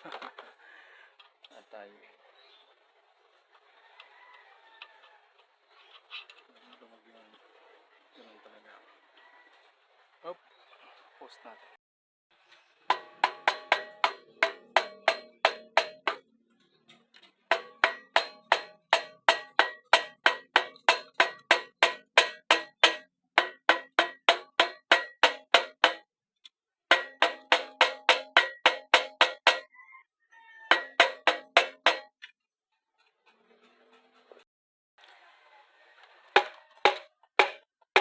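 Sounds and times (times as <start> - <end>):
hammer blows on metal: 12.9 - 16.2, 17.5 - 26.0, 26.9 - 29.7, 30.7 - 32.1.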